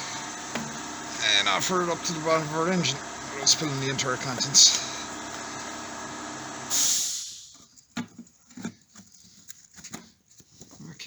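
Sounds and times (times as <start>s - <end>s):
steady hum: 0.0s - 7.5s
short hiss: 6.7s - 7.5s.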